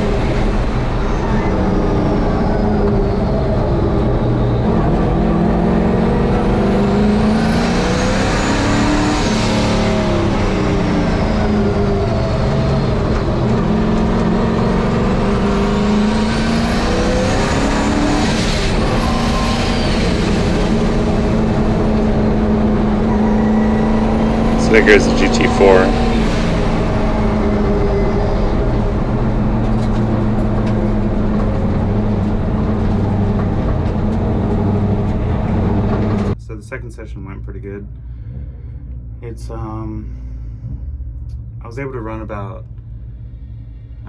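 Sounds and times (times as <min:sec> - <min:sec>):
race truck engine revving: 0:00.0 - 0:44.0
turbo whistle: 0:16.8 - 0:21.0, 0:23.0 - 0:26.3.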